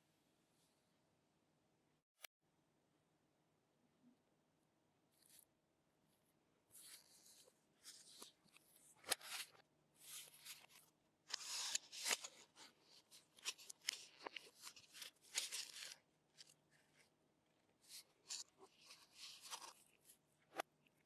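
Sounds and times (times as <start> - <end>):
packaging rustling and crinkling: 11.4 - 16.6.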